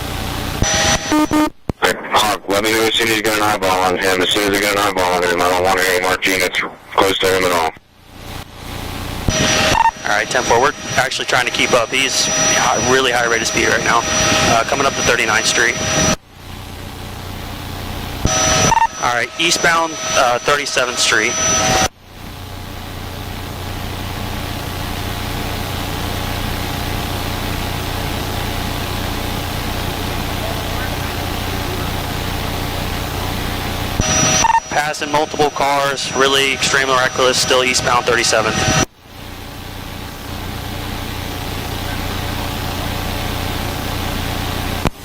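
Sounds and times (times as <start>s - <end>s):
helicopter engine and rotor hum: 0.0s - 45.0s
steady tones: 2.8s - 21.9s, 26.9s - 42.8s
intercom hiss: 9.3s - 16.2s, 18.2s - 21.9s, 28.7s - 44.7s.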